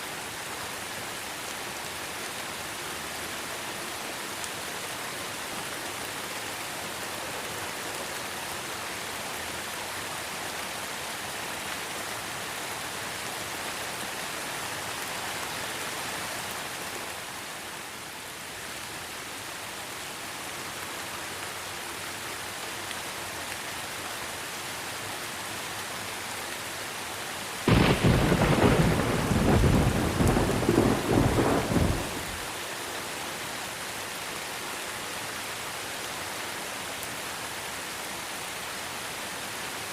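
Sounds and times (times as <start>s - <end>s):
steady rain hiss: 0.0s - 39.9s
thunder crack and rumble: 27.7s - 32.4s.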